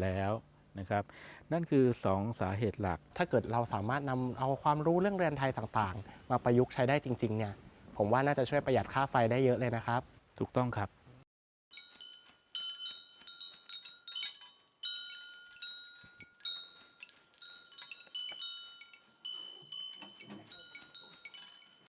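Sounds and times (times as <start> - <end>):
metal wind chimes tinkling: 11.7 - 21.9.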